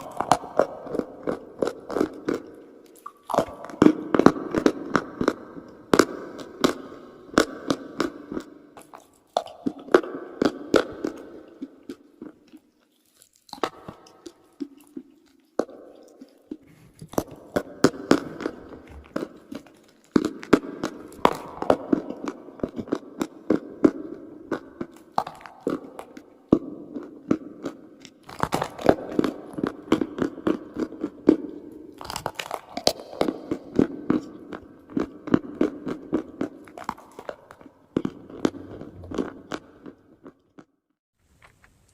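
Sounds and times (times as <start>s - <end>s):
chalk being chewed: 0.0s - 5.8s, 6.4s - 40.7s.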